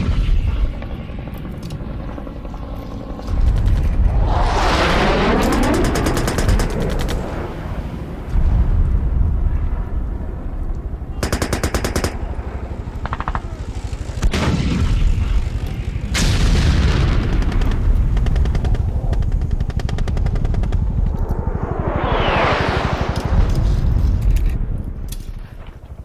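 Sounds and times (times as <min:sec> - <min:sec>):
steady low rumble: 0:00.0 - 0:26.0
machine-gun fire: 0:05.5 - 0:07.3, 0:11.2 - 0:12.4, 0:16.2 - 0:21.0
heavy blast: 0:12.1 - 0:25.1.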